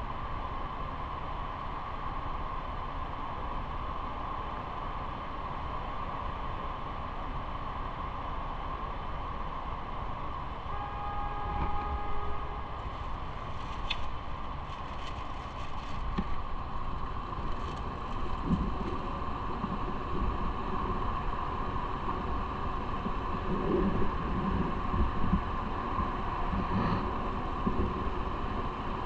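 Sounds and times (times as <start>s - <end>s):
road traffic noise: 8.4s - 19.7s
short pitched tone: 10.7s - 12.8s.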